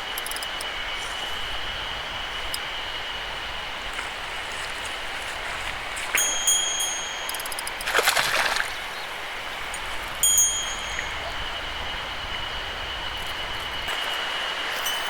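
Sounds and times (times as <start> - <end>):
stream running: 0.0 - 15.0
small metal bell ringing: 6.2 - 8.3, 9.7 - 11.6, 14.7 - 15.0.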